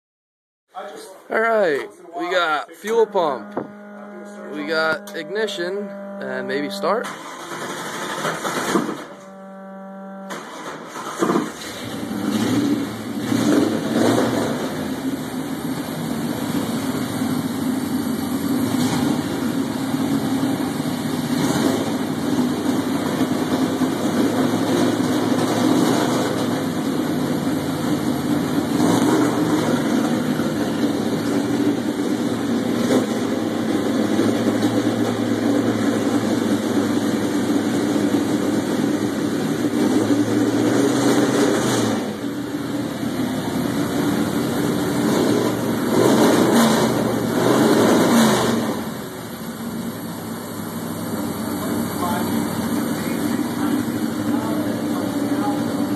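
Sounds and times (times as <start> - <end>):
engine starting and idling: 4.3 - 9.4, 10.3 - 22.7.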